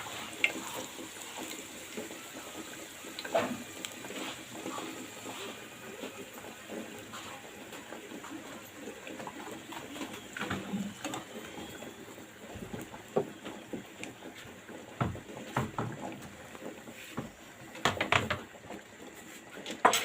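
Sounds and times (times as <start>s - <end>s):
objects knocking and clicking: 17.2s - 18.5s.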